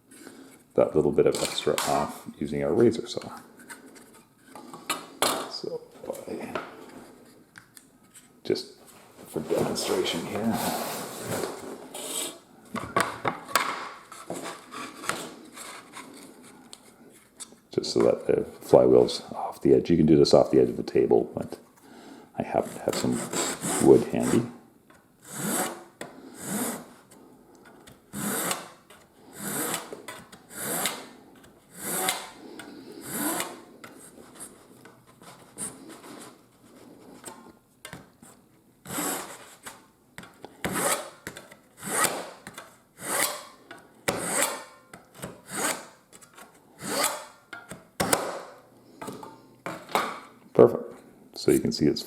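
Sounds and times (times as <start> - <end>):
saw cutting wood: 22.8 - 24.5, 25.3 - 25.8, 28.2 - 28.8, 29.4 - 29.9, 30.5 - 31.1, 31.8 - 32.3, 33.0 - 33.6, 43.0 - 43.5, 44.1 - 44.7, 45.4 - 45.9, 46.8 - 47.3.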